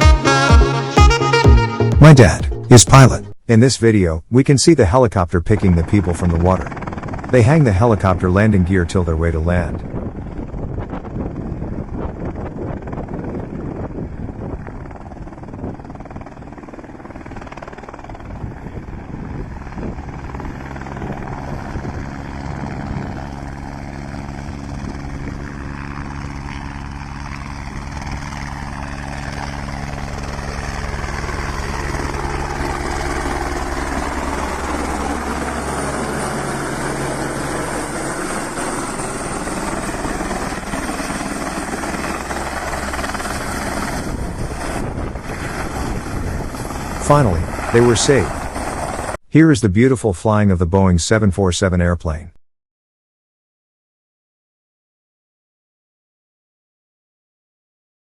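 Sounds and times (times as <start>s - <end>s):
helicopter rotor and engine: 4.9s - 49.2s.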